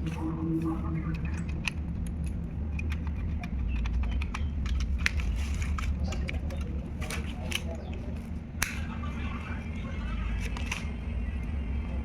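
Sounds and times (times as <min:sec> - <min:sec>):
steady low hum: 0:00.0 - 0:12.0
small clicks and taps: 0:01.1 - 0:08.0.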